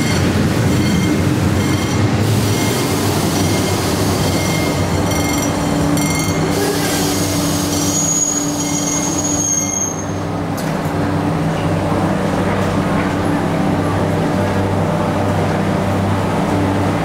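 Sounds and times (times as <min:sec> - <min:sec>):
train low hum: 0:00.0 - 0:17.0
thin wheel squeal: 0:06.1 - 0:10.2.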